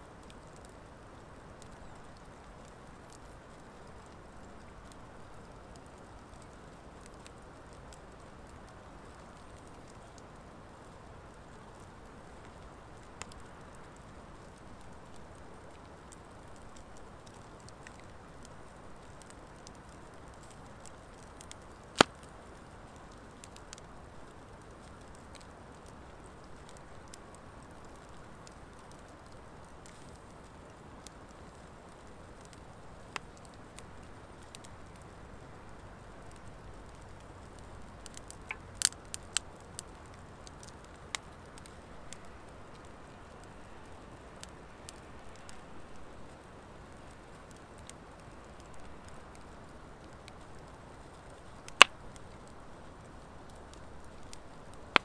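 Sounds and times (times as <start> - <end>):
fire crackling pops: 0.0 - 55.0
wood fire hissing: 0.1 - 55.0.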